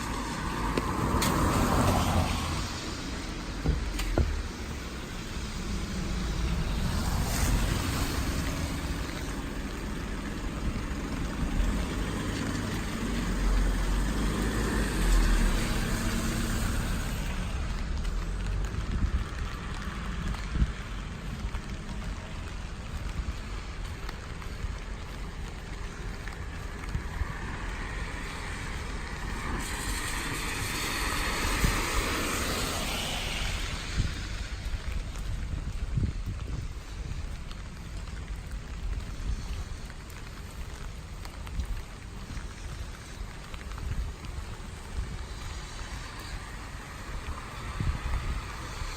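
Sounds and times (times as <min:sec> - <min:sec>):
rain falling: 0:00.0 - 0:48.9
tyres hissing on wet road: 0:00.0 - 0:48.9.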